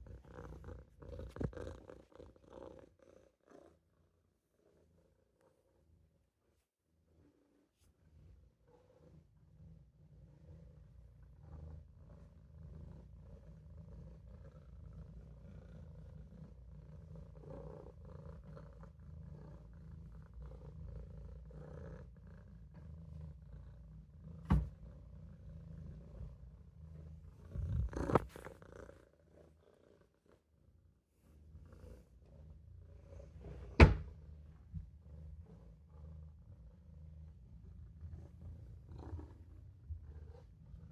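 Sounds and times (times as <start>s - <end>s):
kitten purring: 0.0s - 6.2s, 7.2s - 40.9s.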